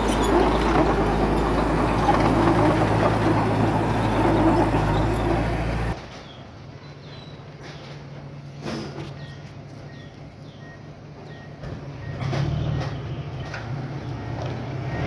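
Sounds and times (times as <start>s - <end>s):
faint engine hum: 0.0s - 6.0s
heavy machinery engine running: 0.0s - 6.0s.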